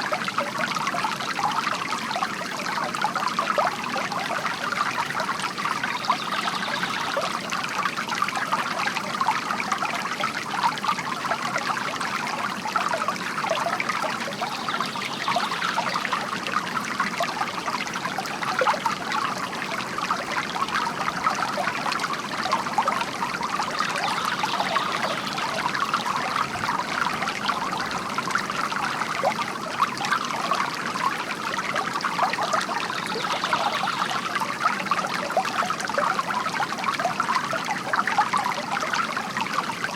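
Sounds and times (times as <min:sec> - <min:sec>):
fountain water trickling into basin: 0:00.0 - 0:39.9.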